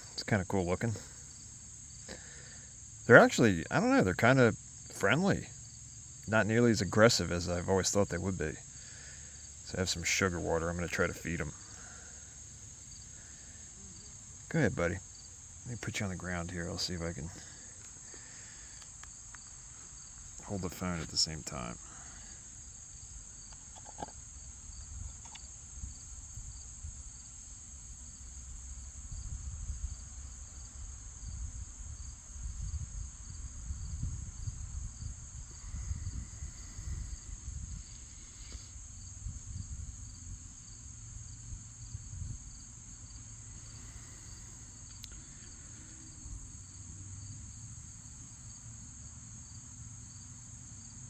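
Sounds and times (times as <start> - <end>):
insects trilling: 0.0 - 51.0
low rumbling on microphone: 31.2 - 40.5.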